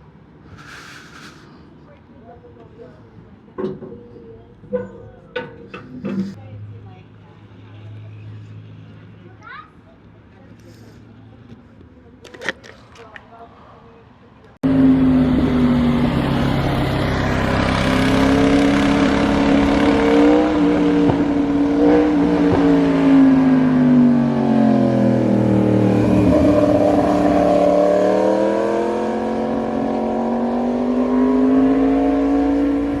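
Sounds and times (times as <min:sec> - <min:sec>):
motorcycle engine revving: 0:14.6 - 0:33.0.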